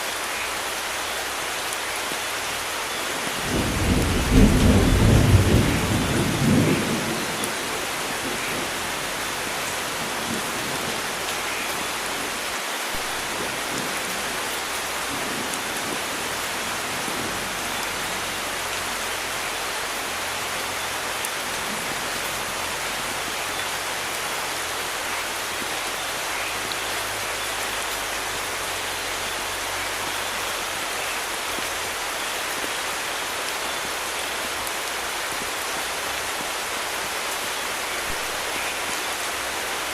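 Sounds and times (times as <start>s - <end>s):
heavy rain hissing: 0.0s - 39.9s
low rumble of thunder: 3.4s - 8.8s.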